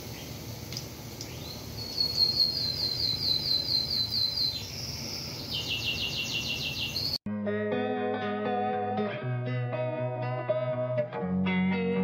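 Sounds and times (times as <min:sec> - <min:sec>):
sausages sizzling in oil: 0:00.0 - 0:04.2
bird trilling: 0:01.3 - 0:07.2.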